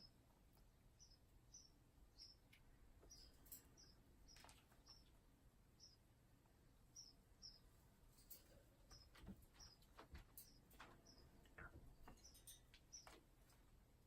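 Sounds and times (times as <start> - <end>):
bird chirping: 0.0 - 6.1, 6.7 - 13.7.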